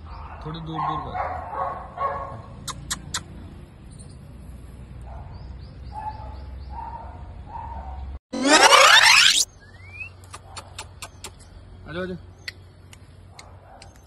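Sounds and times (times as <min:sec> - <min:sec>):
loud rising whoosh: 0:08.3 - 0:09.5.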